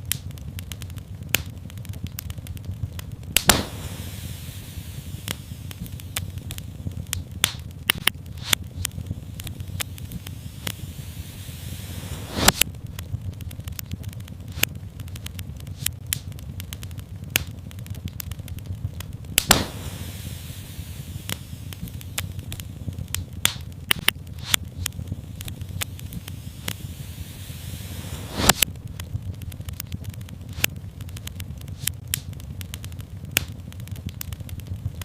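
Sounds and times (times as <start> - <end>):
soft hiss: 0.0 - 34.5
low steady rumble: 0.0 - 35.0
wood fire crackling: 0.0 - 35.0.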